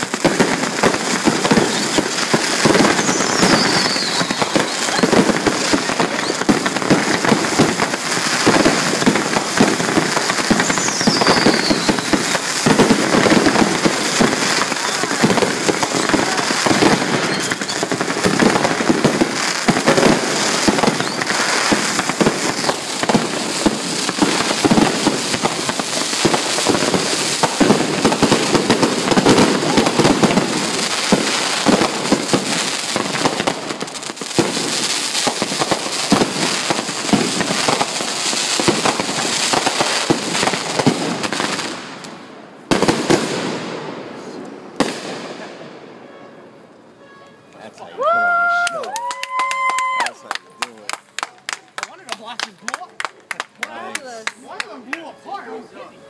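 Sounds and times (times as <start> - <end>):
fireworks bangs and crackling: 0.0 - 46.1.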